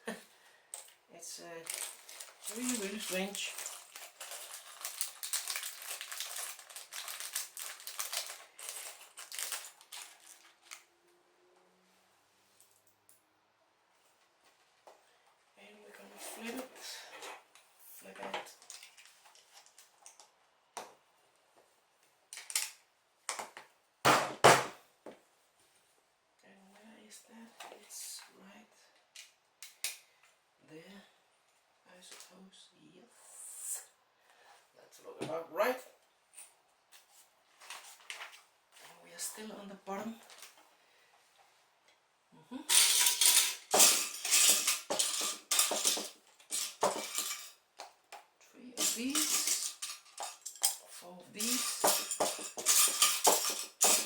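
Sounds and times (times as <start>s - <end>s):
plastic toy bricks clattering: 1.6s - 10.8s, 42.7s - 47.6s, 48.8s - 54.0s.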